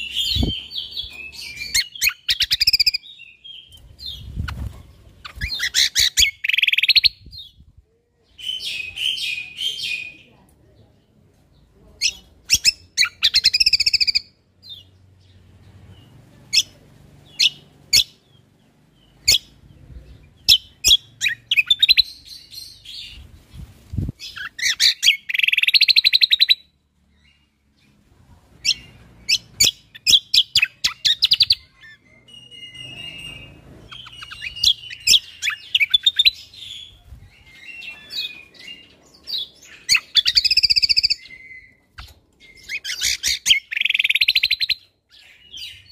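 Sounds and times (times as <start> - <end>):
songbird chirping and trilling: 0.0 - 45.9.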